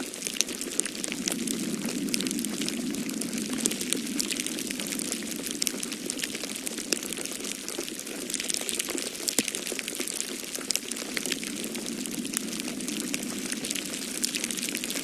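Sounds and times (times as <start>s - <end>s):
storm wind rushing: 0.0s - 7.6s, 10.4s - 15.0s
wood fire crackling: 0.0s - 15.0s.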